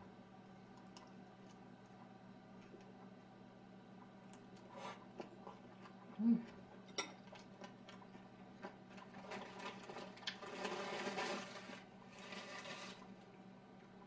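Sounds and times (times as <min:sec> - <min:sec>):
faint low hum: 0:00.0 - 0:14.0
person chewing: 0:04.3 - 0:11.0.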